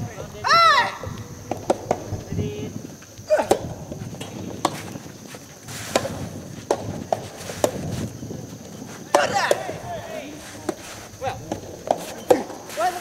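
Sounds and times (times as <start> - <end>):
tennis ball hit by rackets: 1.4 - 2.2, 3.3 - 5.0, 5.7 - 7.9, 9.0 - 9.8, 10.6 - 13.0.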